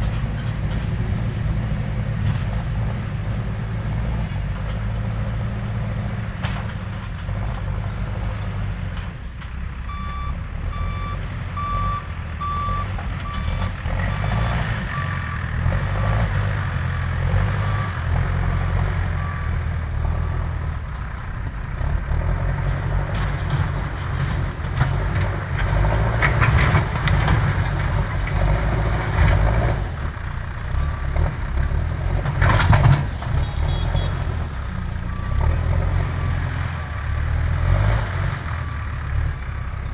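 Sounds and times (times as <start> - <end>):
diesel engine under load: 0.0 - 39.9
reversing alarm beeping: 9.9 - 15.5.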